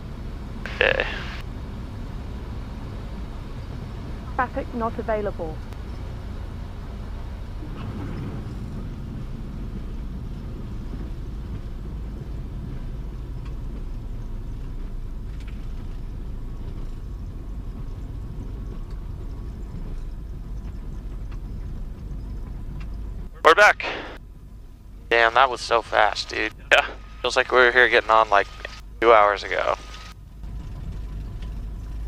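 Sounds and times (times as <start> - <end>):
aircraft engine low rumble: 0.0 - 32.0.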